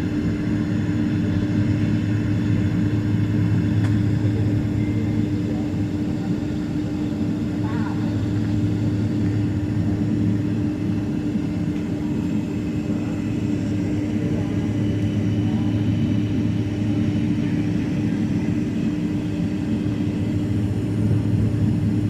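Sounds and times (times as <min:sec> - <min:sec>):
airliner cabin drone: 0:00.0 - 0:22.0
low hum: 0:00.0 - 0:22.0.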